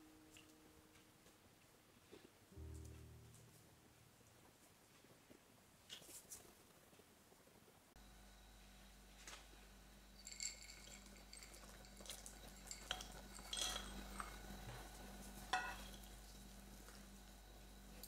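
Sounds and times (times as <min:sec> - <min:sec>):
faint steady hum: 0:00.0 - 0:18.0
clinks of small hard objects: 0:10.2 - 0:14.6.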